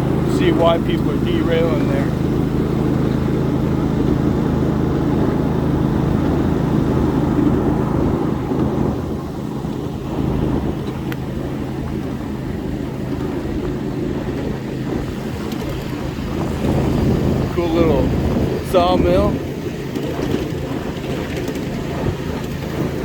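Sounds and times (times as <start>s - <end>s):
miniature train rumbling: 0.0s - 23.0s.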